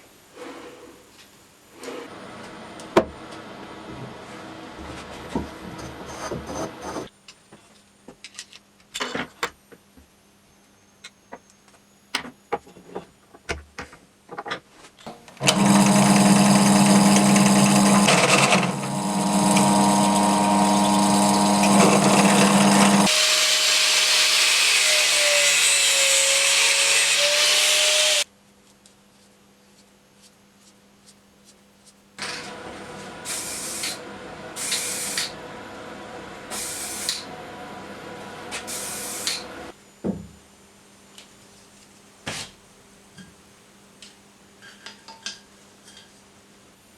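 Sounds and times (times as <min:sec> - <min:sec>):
power tool running: 0:15.4 - 0:28.2, 0:32.2 - 0:39.7.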